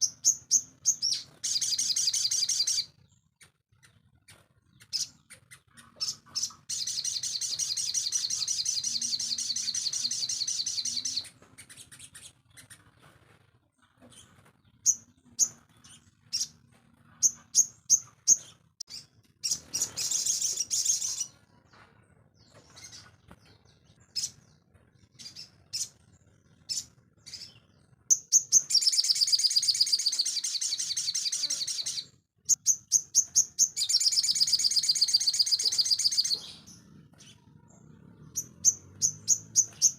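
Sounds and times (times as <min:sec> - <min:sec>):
songbird trilling: 0:28.1 - 0:36.8, 0:38.3 - 0:39.9.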